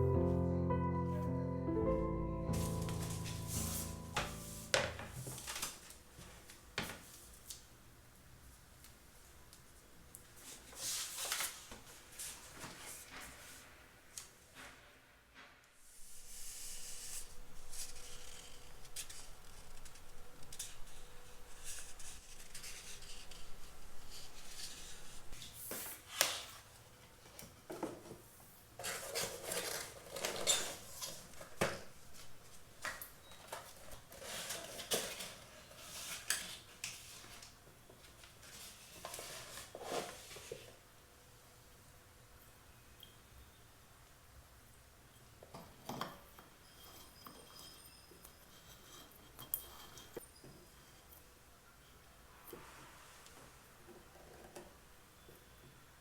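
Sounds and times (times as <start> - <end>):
rubbing or scraping: 2.6 - 5.7, 14.6 - 26.4.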